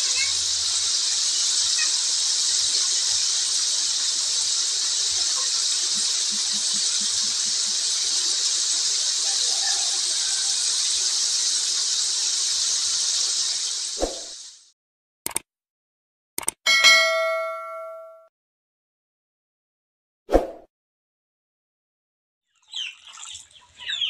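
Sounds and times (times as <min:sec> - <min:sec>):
shrimp sizzling in hot oil: 0:00.0 - 0:14.7.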